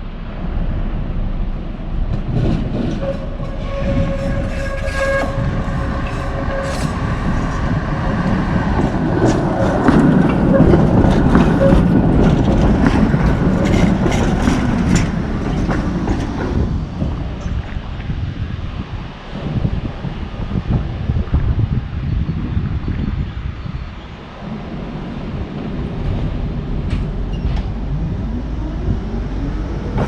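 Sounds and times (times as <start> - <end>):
tram wheel rumble on rails: 0.0 - 30.0
rail joint clicks and knocks: 1.5 - 18.1, 25.1 - 30.0.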